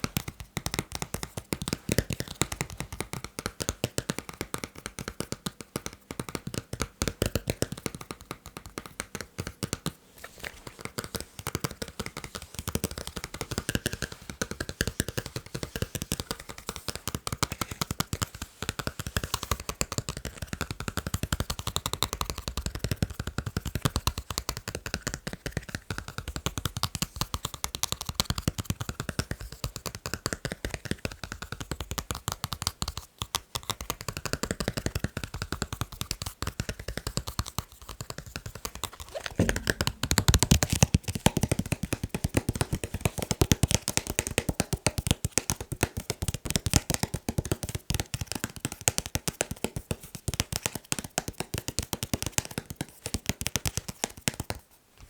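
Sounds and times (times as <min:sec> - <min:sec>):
brief scraping: 0:39.0 - 0:40.8.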